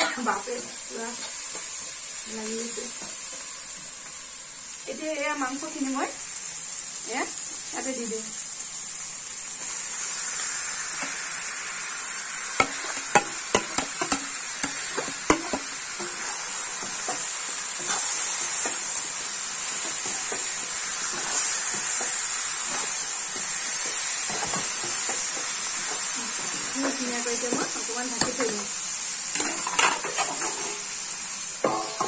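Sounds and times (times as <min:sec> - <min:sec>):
chicken sizzling in hot oil: 0:00.0 - 0:32.0
sharp knocks against pan: 0:12.6 - 0:15.6
metal spatula stirring: 0:12.6 - 0:18.8.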